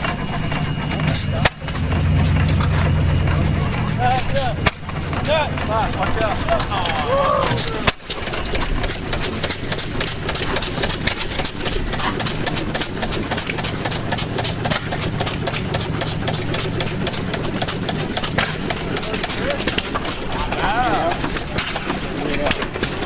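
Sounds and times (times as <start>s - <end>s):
gas engine running: 0.0s - 23.0s.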